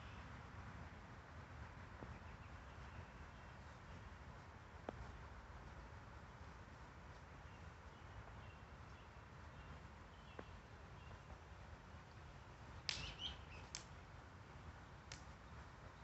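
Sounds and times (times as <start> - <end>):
faint low background noise: 0.0 - 16.0
high bird chirps: 13.0 - 13.7.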